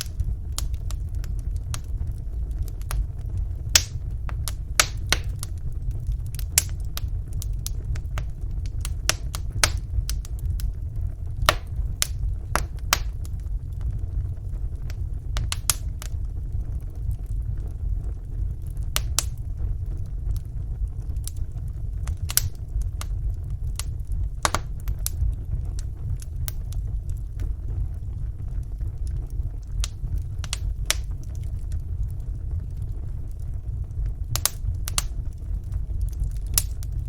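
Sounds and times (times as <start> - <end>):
burning logs crackling: 0.0 - 37.0
low rumble of flames: 0.0 - 37.0.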